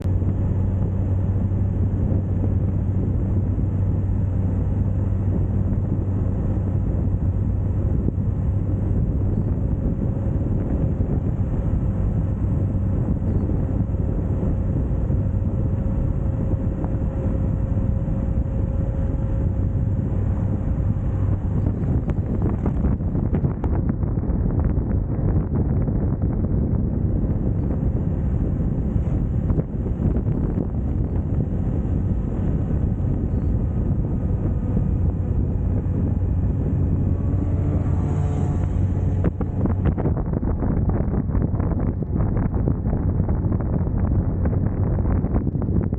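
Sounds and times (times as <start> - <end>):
motorcycle engine running: 0.0 - 45.9
wind on microphone: 0.0 - 45.9.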